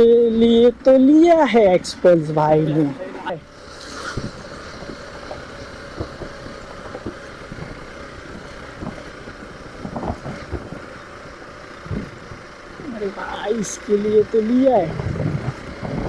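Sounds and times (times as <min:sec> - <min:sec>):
motorcycle engine running: 0:00.0 - 0:16.0
wind noise on microphone: 0:03.7 - 0:12.4, 0:14.1 - 0:16.0
low thumps: 0:04.1 - 0:16.0.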